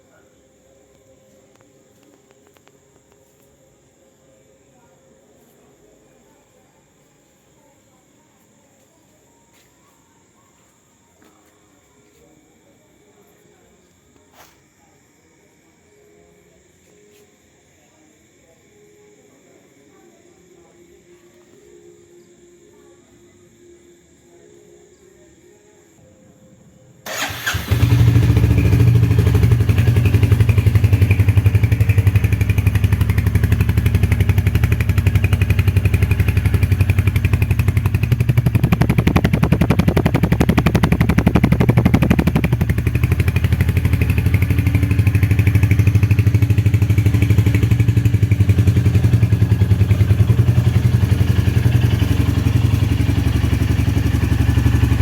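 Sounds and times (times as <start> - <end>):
motorcycle engine starting and idling: 27.1 - 55.0.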